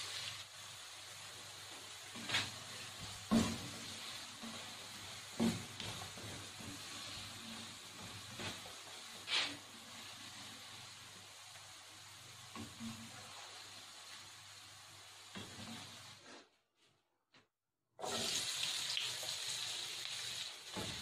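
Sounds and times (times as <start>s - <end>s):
potatoes sizzling in oil: 0.0s - 16.2s, 18.0s - 21.0s.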